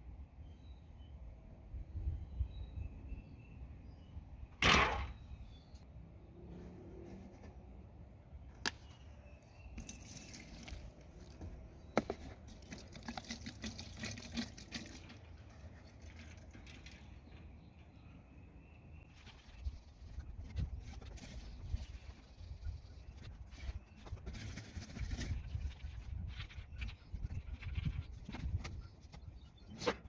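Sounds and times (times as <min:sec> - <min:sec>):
liquid pouring into a container: 0:09.8 - 0:11.0, 0:12.5 - 0:17.2.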